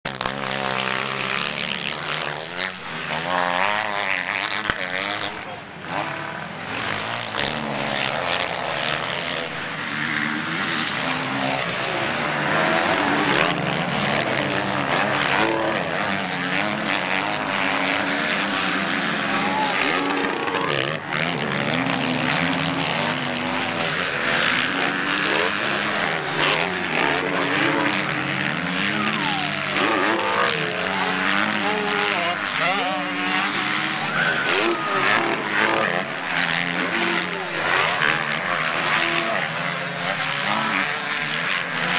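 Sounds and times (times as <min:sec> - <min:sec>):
motocross engines revving: 0:00.0 - 0:41.9.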